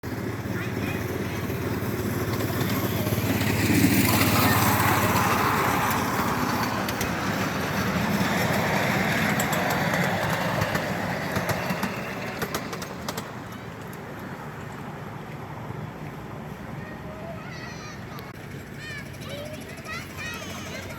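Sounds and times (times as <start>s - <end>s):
miniature train rumbling: 0.0s - 20.9s.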